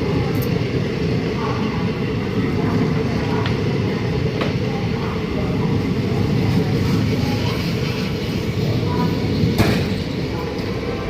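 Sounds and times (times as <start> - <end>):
faint voices: 0.0 - 11.0
train rumbling in motion: 0.0 - 11.0.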